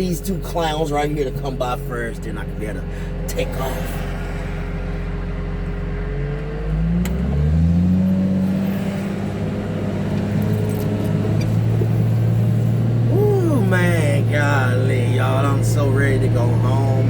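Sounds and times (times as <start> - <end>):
vehicle engine idling and revving: 0.0 - 17.0.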